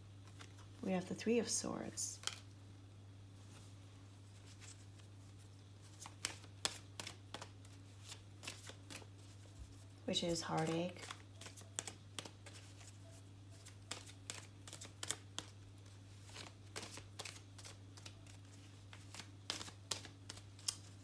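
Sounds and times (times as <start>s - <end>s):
low electrical hum: 0.0s - 21.0s
cards clicking and slapping on table: 5.9s - 9.4s, 10.5s - 12.9s, 13.6s - 21.0s.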